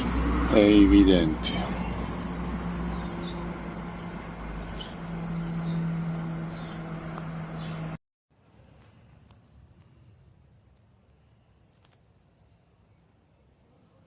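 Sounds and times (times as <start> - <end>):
bird chirping: 2.8 - 8.0.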